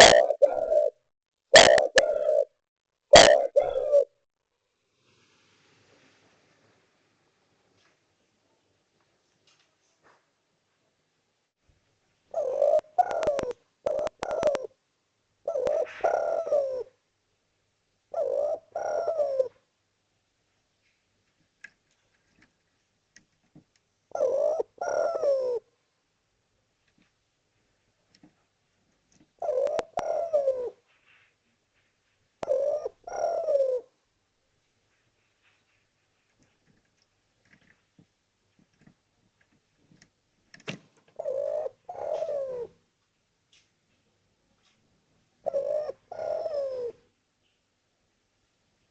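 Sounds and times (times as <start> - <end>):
dove cooing: 0.0 - 1.0, 1.6 - 4.2, 12.3 - 14.8, 15.4 - 17.0, 18.1 - 19.6, 24.1 - 25.7, 29.4 - 31.2, 32.4 - 34.0, 41.1 - 42.8, 45.4 - 47.0.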